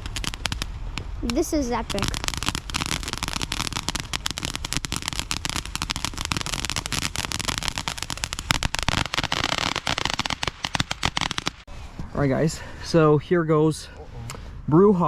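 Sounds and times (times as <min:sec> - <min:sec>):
fireworks crackling: 0:00.0 - 0:11.7.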